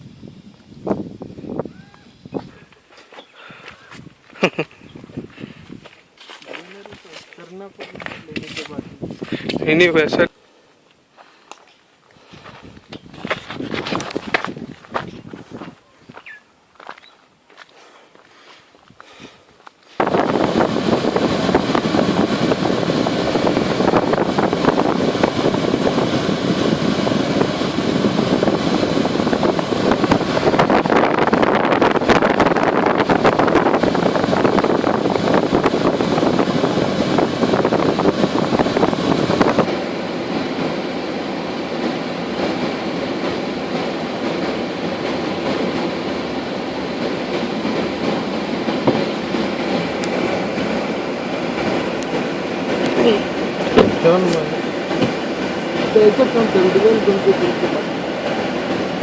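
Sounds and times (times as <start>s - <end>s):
train rumbling and rattling: 3.7s - 10.3s, 12.3s - 17.5s, 18.7s - 59.0s.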